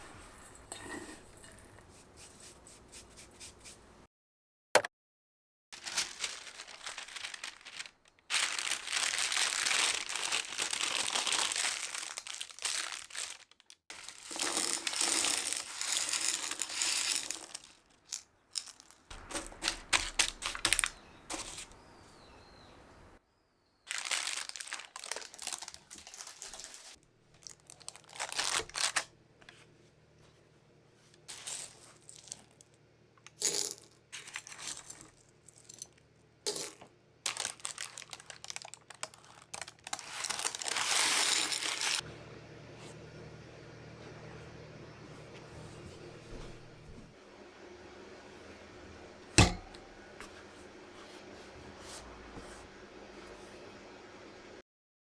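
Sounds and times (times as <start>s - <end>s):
rustling and scraping: 0.0s - 4.0s, 5.8s - 23.2s, 25.0s - 27.0s, 39.0s - 42.0s, 44.0s - 47.2s, 49.3s - 53.7s.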